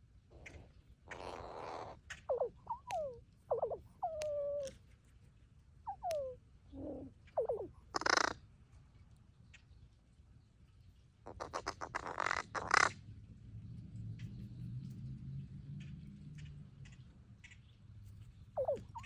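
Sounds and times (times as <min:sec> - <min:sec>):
crow harsh rasping calls: 0:01.1 - 0:04.2, 0:06.8 - 0:08.4.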